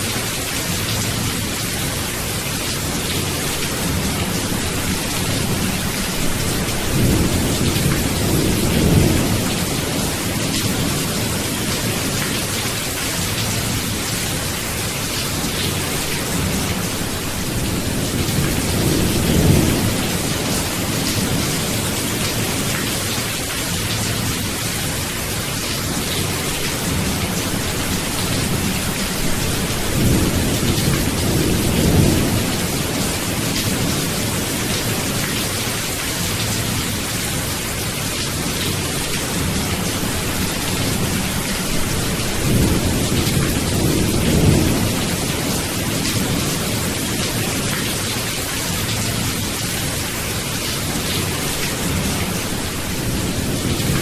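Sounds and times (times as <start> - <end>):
steady rain hissing: 0.0 - 54.0
thunder rumbling: 26.1 - 35.2.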